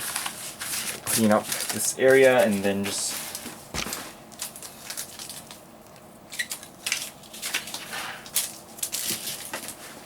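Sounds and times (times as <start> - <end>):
wrappers crinkling: 0.0 - 3.5, 4.3 - 5.6, 6.3 - 10.0
cards being handled: 0.1 - 5.6.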